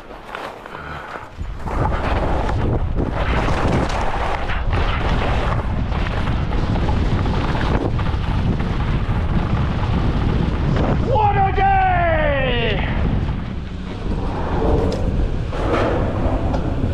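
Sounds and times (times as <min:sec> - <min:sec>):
skis scraping over snow: 0:00.0 - 0:11.1
wind buffeting microphone: 0:01.2 - 0:16.9.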